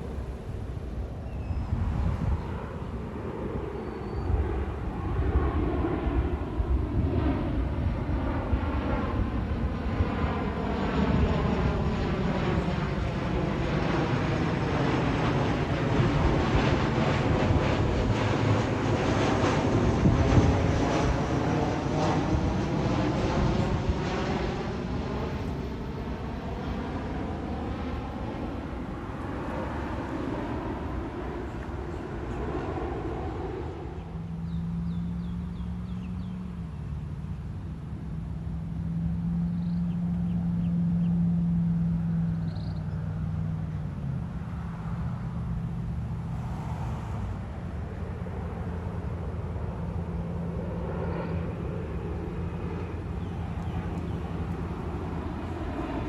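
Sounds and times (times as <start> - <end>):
broad rushing noise: 0.0 - 3.9, 43.0 - 56.0
low engine hum: 0.0 - 56.0.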